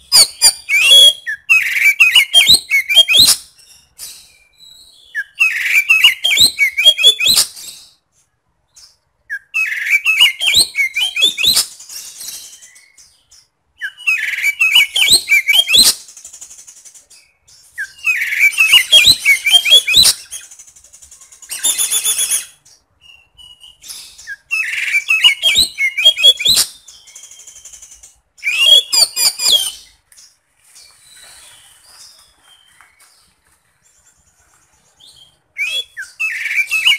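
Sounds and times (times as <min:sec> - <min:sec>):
bird singing whistled phrases: 0:00.0 - 0:03.4, 0:04.2 - 0:07.8, 0:09.3 - 0:13.0, 0:13.8 - 0:16.0, 0:17.5 - 0:20.5, 0:21.4 - 0:30.0, 0:35.0 - 0:36.9.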